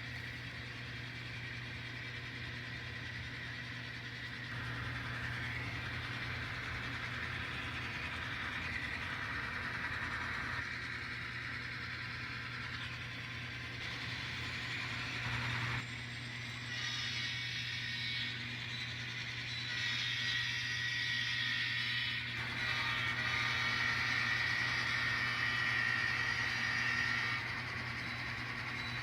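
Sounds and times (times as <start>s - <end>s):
low hum: 0.0s - 19.8s
model locomotive engine sound: 0.0s - 29.0s.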